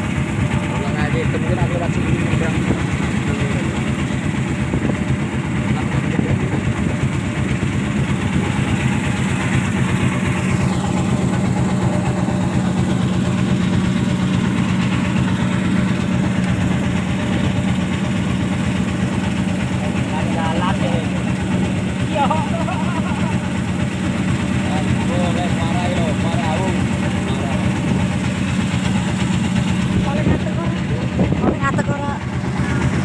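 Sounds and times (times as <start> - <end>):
ship engine droning: 0.0 - 33.0.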